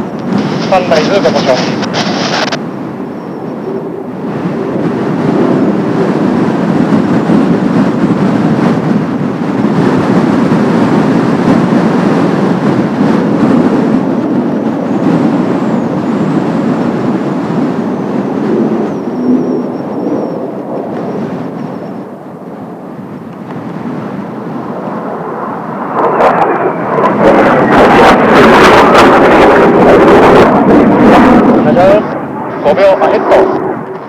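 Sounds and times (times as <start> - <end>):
thin high whine: 0.0 - 4.7, 17.3 - 28.2
jet roar: 0.0 - 34.0.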